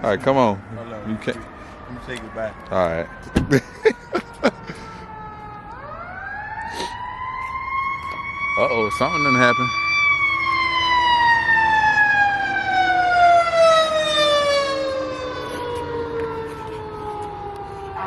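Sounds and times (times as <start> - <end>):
siren sliding down in pitch: 0.8 - 18.0.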